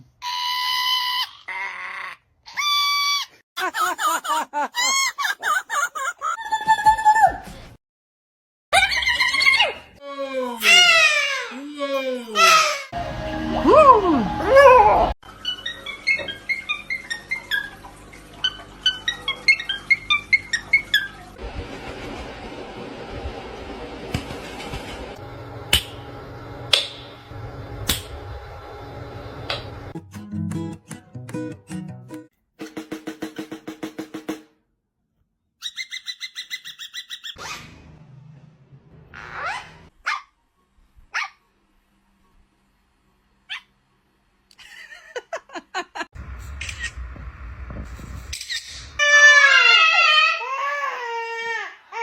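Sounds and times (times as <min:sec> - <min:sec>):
low rumbling noise: 0:46.2 - 0:49.0.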